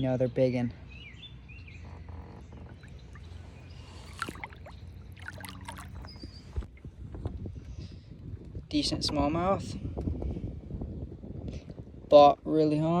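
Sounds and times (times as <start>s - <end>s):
wind rumble on microphone: 0.0s - 13.0s
water splashing and trickling: 1.8s - 6.7s.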